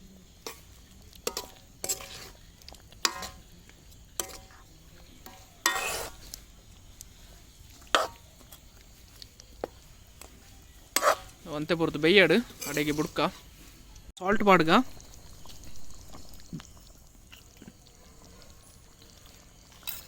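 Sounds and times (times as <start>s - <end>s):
faint sizzle of frying: 0.0s - 20.0s
spatula scraping a pan: 0.3s - 10.1s, 10.7s - 13.8s.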